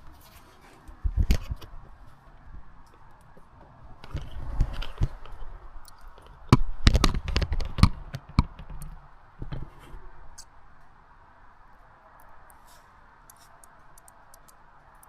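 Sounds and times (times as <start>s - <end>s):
rustling: 0.0s - 10.5s.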